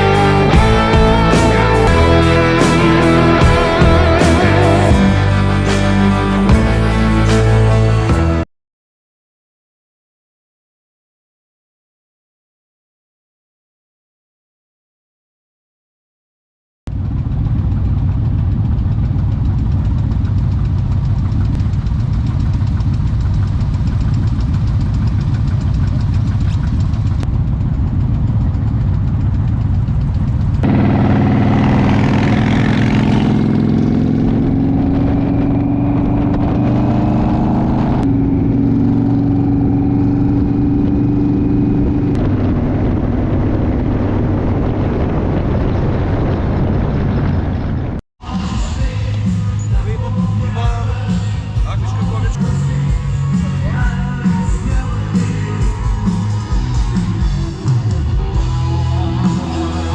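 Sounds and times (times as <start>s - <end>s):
motorcycle engine running: 0.0s - 8.4s, 16.9s - 44.7s, 48.6s - 59.9s.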